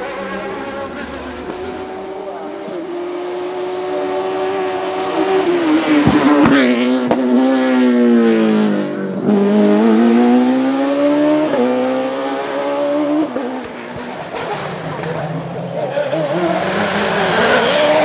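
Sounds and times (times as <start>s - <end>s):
quick gear upshifts: 0.0s - 2.2s, 16.1s - 18.0s
racing car engine revving: 0.0s - 18.0s.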